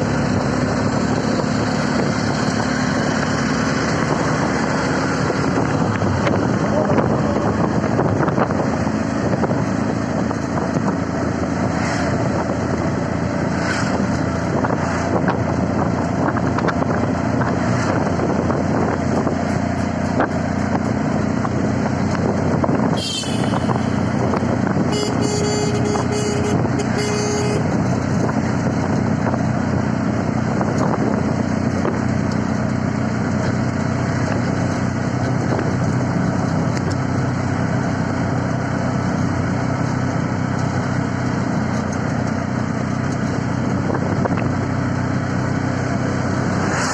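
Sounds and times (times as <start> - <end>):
auto-rickshaw engine running: 0.0 - 46.9
road noise: 0.0 - 46.9
vehicle horn short beeps: 23.0 - 24.1, 24.8 - 27.8.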